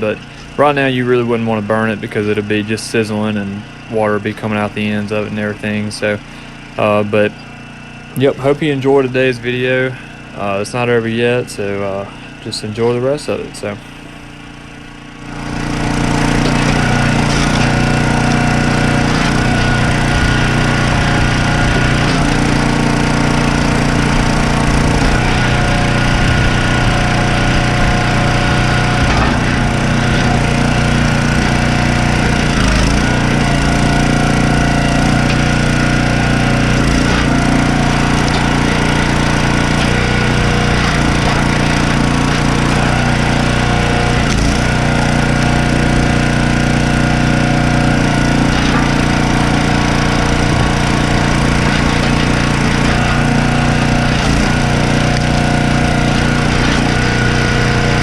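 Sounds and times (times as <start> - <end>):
small engine running: 0.0 - 58.0
wood cracking as it splits: 16.4 - 47.2, 47.8 - 58.0.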